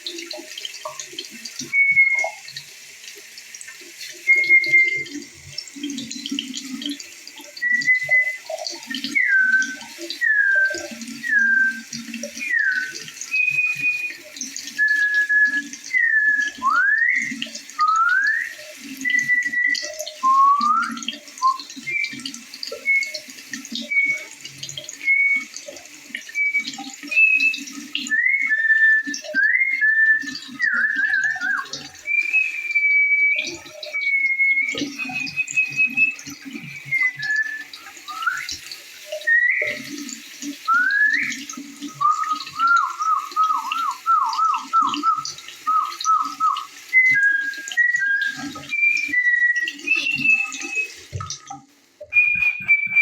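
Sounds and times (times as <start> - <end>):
birds singing whistled notes: 26.4 - 38.6, 39.2 - 40.0, 40.7 - 50.9, 52.1 - 53.0
stream babbling: 40.7 - 50.8.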